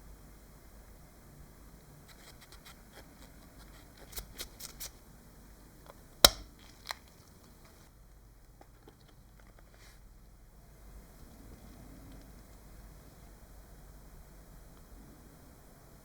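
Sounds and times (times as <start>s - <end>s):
loud snap: 6.3s - 6.5s.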